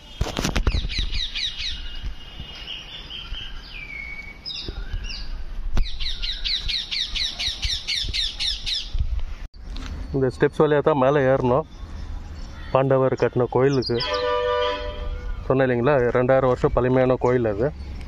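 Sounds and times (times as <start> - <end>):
whistled bird notes: 0.0 - 8.9.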